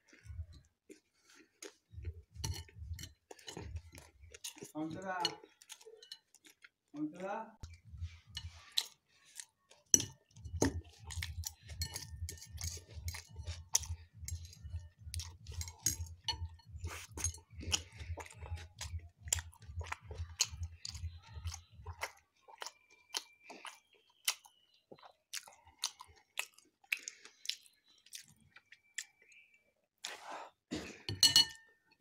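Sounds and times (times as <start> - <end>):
chewing and crunching: 0.0 - 30.2.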